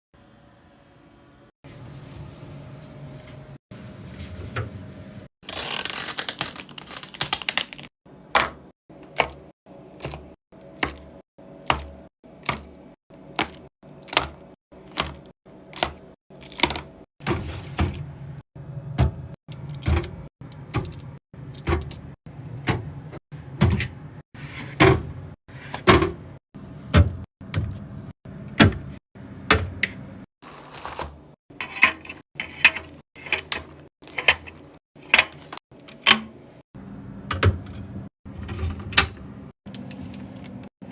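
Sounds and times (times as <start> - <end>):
packaging rustling: 5.4 - 7.9.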